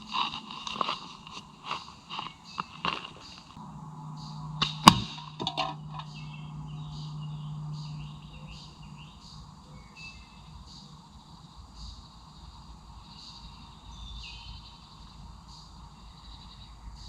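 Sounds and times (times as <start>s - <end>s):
birds chirping: 0.0s - 17.0s
slingshot snap: 4.6s - 5.4s
ball cracking against target: 4.6s - 6.1s.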